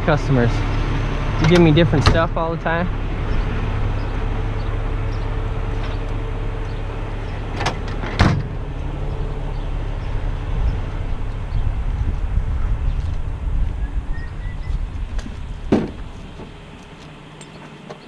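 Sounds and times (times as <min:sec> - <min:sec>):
truck diesel engine idling: 0:00.0 - 0:17.9
sharp knocks: 0:15.7 - 0:16.5.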